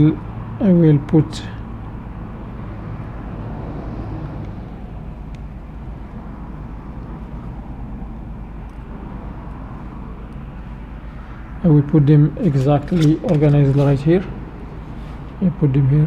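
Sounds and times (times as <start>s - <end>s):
electrical hum and hiss: 0.0s - 16.0s.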